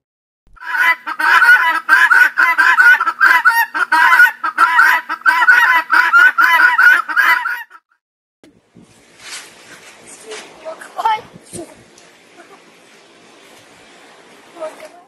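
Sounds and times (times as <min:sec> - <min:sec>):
guineafowl harsh clucking calls: 0:00.6 - 0:07.8.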